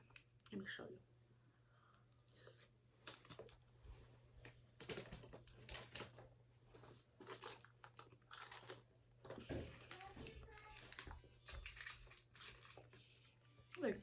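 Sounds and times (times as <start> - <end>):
plastic crinkling and clicking: 3.0 - 3.6, 4.4 - 13.9.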